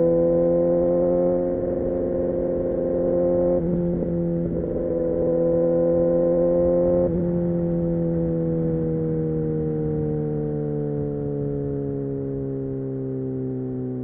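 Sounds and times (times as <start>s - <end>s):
motorcycle engine cruising: 0.0s - 14.0s.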